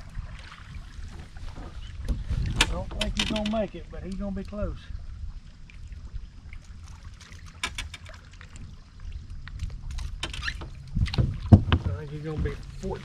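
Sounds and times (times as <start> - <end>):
wind and water rumble: 0.0 - 13.0
light taps and clicks of fish handling: 1.1 - 4.6.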